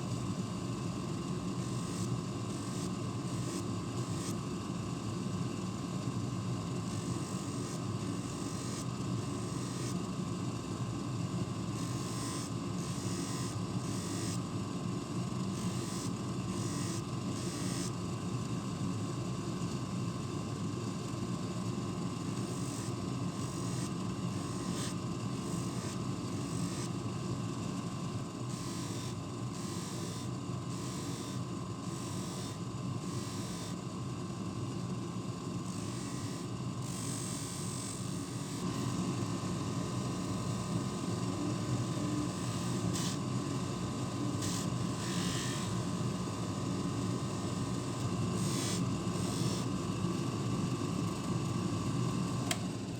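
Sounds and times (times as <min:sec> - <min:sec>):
small motor running: 0:06.9 - 0:10.0, 0:11.8 - 0:14.4, 0:15.5 - 0:17.9, 0:22.4 - 0:27.0, 0:28.5 - 0:33.8, 0:35.7 - 0:49.8.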